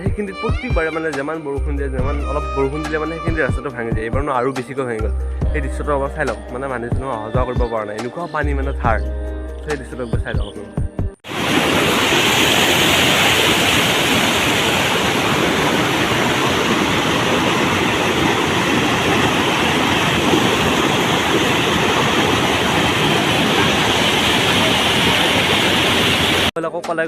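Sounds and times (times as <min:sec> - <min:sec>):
floodwater rushing: 0:11.3 - 0:26.5.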